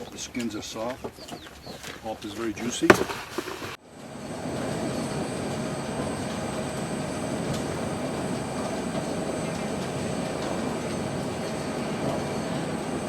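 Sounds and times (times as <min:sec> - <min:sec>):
faint constant hum: 0:00.0 - 0:13.0
mechanical running noise: 0:04.0 - 0:13.0.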